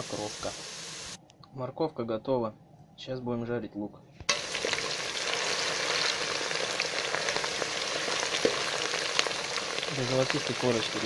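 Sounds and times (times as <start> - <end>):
onions sizzling in hot oil: 0.0 - 1.2, 4.3 - 11.0.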